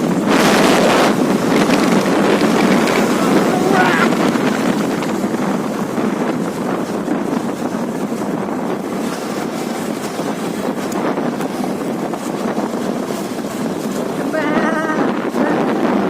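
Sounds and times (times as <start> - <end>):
motorcycle engine: 0.0 - 7.2
road noise: 0.0 - 14.4
wind rush on microphone: 0.0 - 16.0.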